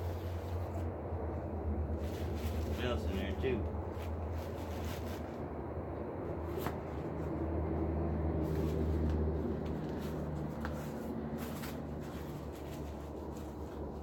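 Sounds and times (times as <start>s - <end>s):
steady low hum: 0.0s - 14.0s
packing paper rustling: 1.9s - 5.4s.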